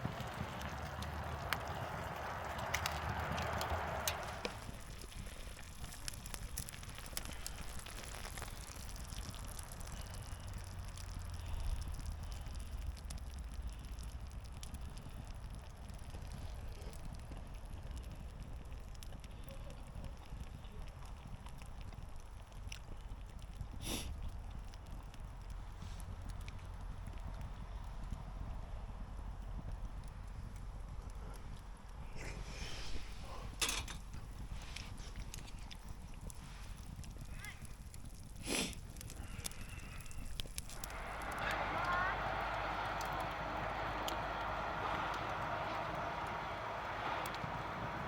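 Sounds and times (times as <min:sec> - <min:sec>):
wood fire crackling and popping: 0:00.0 - 0:48.0
low rumble: 0:40.0 - 0:48.0.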